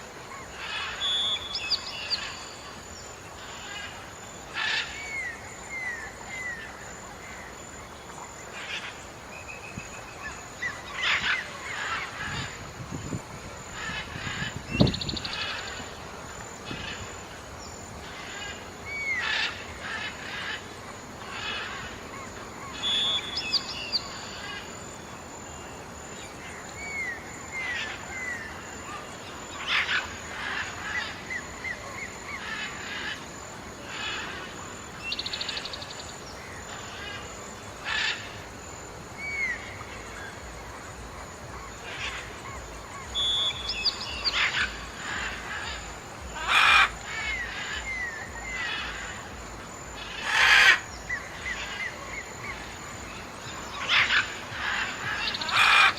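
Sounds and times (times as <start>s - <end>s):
steady background hiss: 0.0s - 55.9s
birds chirping and whistling: 43.0s - 49.2s.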